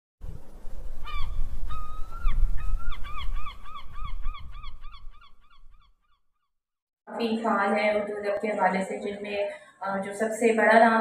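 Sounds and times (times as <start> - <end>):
bird calling: 1.0 - 6.2.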